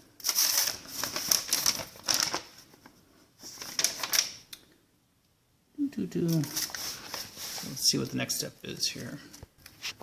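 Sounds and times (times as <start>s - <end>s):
paper rustling and crinkling: 0.2s - 4.4s, 6.2s - 8.3s.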